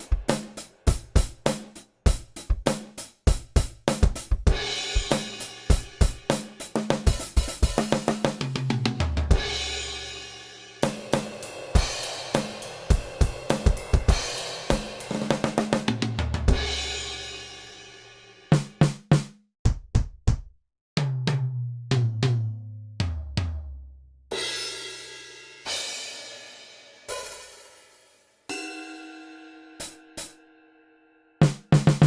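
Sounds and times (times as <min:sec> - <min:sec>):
drum kit beat: 0:00.0 - 0:28.8, 0:29.8 - 0:30.4, 0:31.4 - 0:32.0
crash cymbal ringing: 0:09.6 - 0:15.6, 0:24.6 - 0:31.2.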